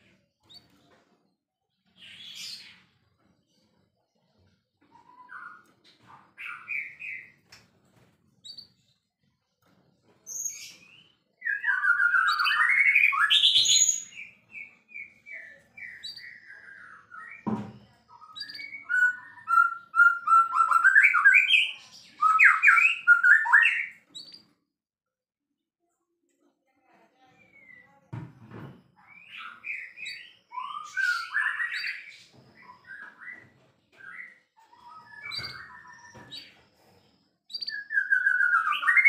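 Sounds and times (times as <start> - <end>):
songbird whistles and trills: 10.3 - 24.4, 29.0 - 36.6, 37.5 - 39.0.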